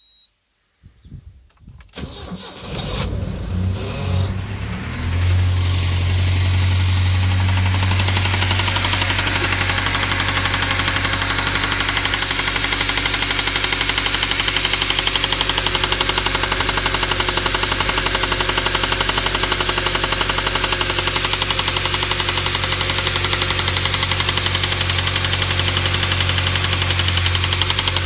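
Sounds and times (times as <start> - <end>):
petrol engine running: 2.5 - 28.0
rapid even engine knocking: 6.8 - 28.0.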